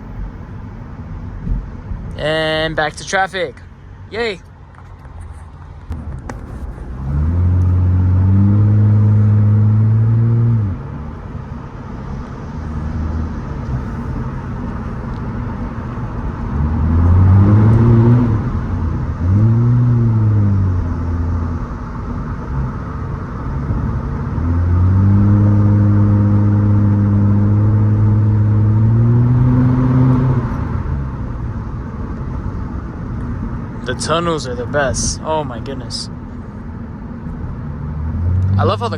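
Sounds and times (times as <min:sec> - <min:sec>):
road noise: 0:00.0 - 0:38.9
car exhaust revving: 0:04.7 - 0:38.9.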